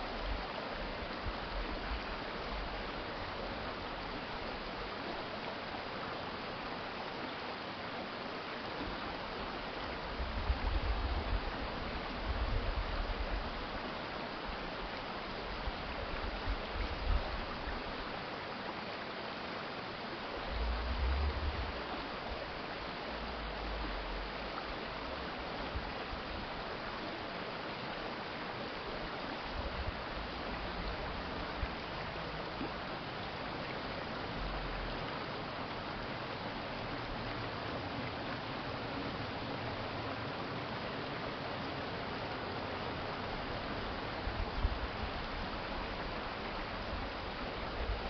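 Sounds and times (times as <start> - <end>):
stream water flowing: 0.0 - 48.0
low rumbles: 20.4 - 22.5.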